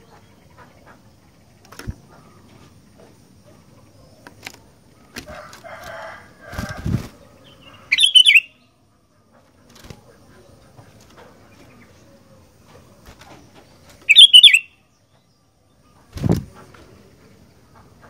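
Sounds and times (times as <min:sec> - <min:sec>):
bird wings flapping: 0:04.4 - 0:07.2, 0:09.6 - 0:10.2, 0:13.0 - 0:14.1, 0:16.1 - 0:16.9
bird chirp: 0:07.2 - 0:08.8, 0:10.3 - 0:18.0.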